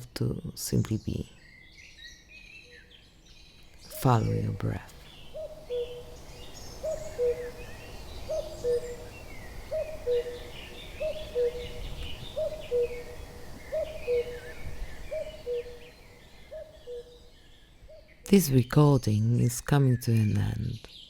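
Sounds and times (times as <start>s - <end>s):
small birds twittering: 0.0s - 21.0s
cuckoo calling: 5.0s - 17.2s.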